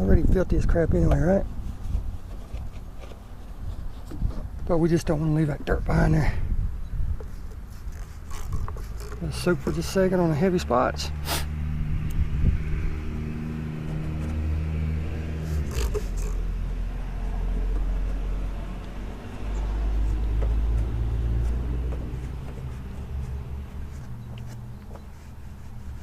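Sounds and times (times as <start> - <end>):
vehicle engine droning: 7.9 - 26.0.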